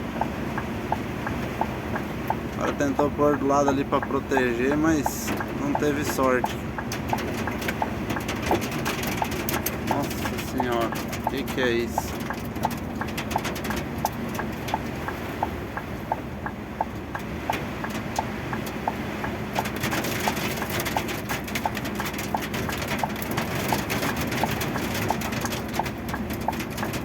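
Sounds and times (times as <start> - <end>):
steady even ticking: 0.0 - 27.0
heavy rain: 2.4 - 13.2.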